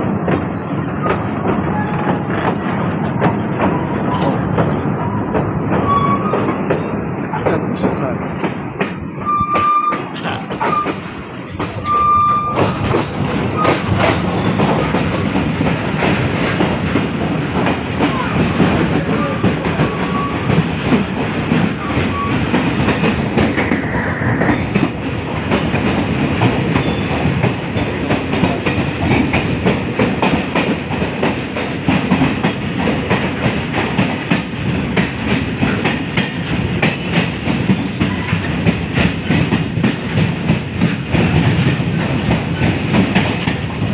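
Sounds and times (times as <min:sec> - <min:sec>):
train wheels rattling on track: 0:00.0 - 0:43.9
short high squeaks: 0:09.3 - 0:11.0.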